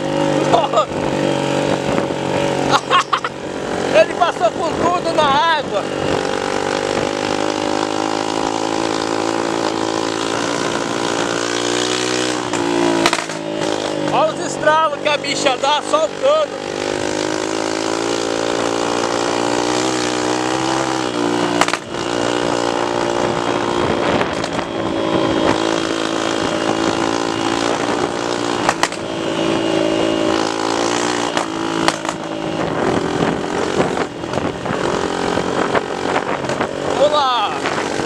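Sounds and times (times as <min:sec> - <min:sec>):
motorcycle engine running: 0:00.0 - 0:38.0
wind on microphone: 0:01.0 - 0:02.5, 0:03.6 - 0:14.1, 0:19.9 - 0:38.0.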